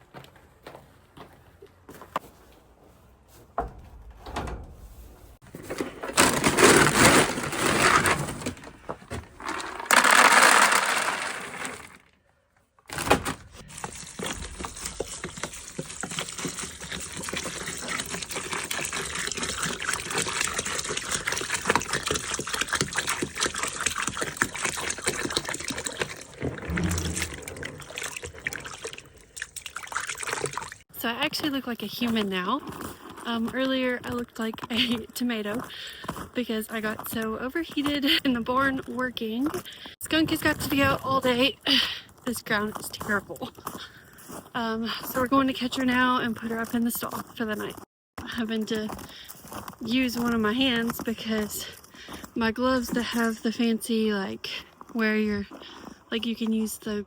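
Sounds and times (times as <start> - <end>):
water rushing: 26.2 - 30.8.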